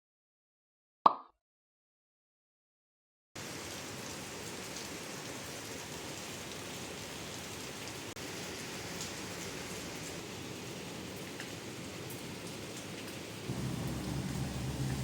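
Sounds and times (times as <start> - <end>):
steady rain falling: 3.4 - 15.0.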